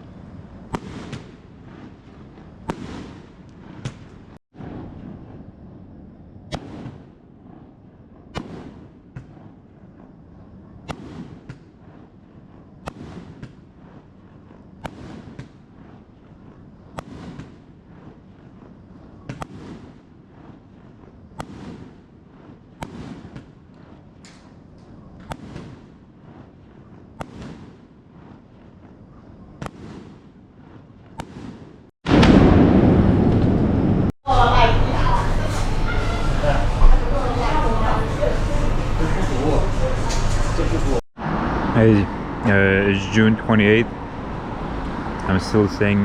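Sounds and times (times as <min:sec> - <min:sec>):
fireworks bangs: 0:00.0 - 0:46.0.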